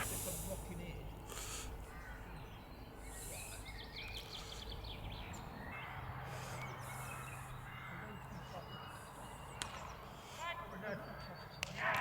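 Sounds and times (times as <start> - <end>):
bird trilling: 0.0 - 0.4
faint outdoor background noise: 0.0 - 12.0.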